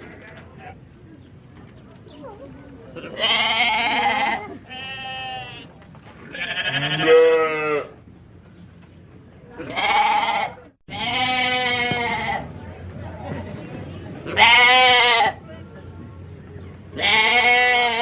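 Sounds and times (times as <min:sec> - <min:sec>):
sheep or goat bleating: 0:03.0 - 0:07.9, 0:09.6 - 0:12.5, 0:14.3 - 0:15.4, 0:17.0 - 0:18.0.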